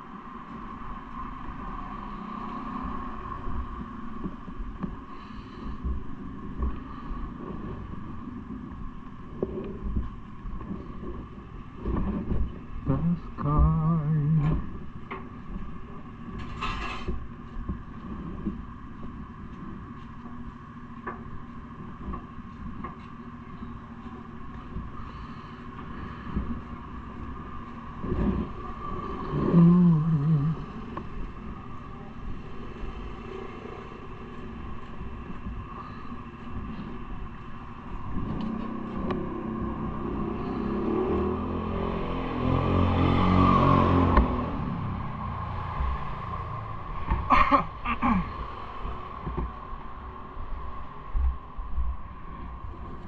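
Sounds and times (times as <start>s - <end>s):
bike riding rumble on road: 0.0s - 53.0s
vehicle engine running: 2.8s - 16.5s, 17.3s - 53.0s
wind on microphone: 5.8s - 20.0s, 25.8s - 41.1s.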